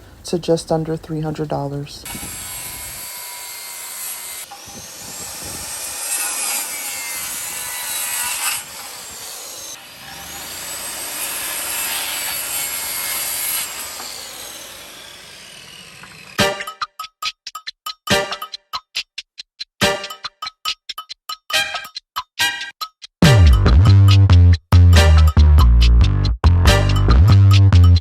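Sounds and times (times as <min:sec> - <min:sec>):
power saw cutting wood: 0:02.0 - 0:16.6.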